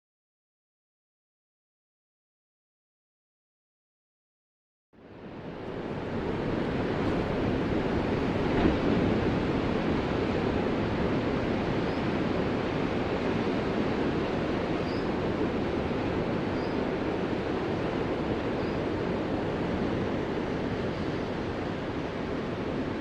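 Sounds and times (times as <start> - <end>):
ocean waves washing: 5.0 - 23.0.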